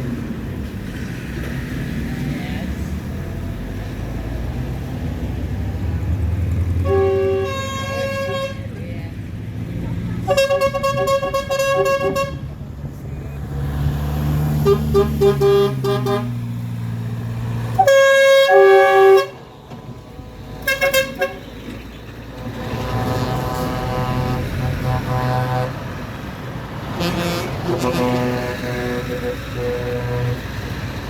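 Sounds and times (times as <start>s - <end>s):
passing vehicle engines: 0.0s - 31.0s
two-tone horn blast: 6.8s - 8.7s, 10.2s - 12.5s, 14.5s - 16.6s, 17.7s - 19.8s, 20.6s - 21.5s, 22.4s - 25.9s, 26.9s - 31.0s
vehicle horns tooting: 6.8s - 8.8s, 10.2s - 12.5s, 14.5s - 16.6s, 17.7s - 19.9s, 20.5s - 25.9s, 26.9s - 31.0s.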